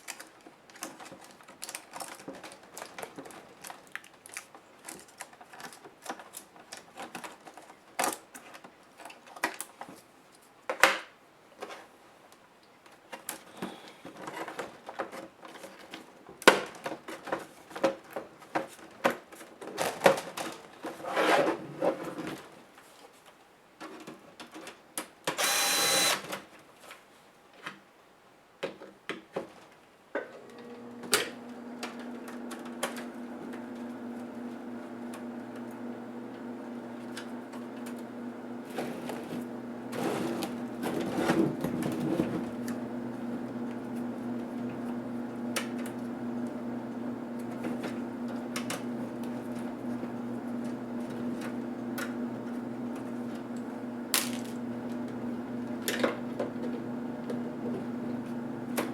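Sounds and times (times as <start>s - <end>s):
short motor whir: 25.4s - 26.2s.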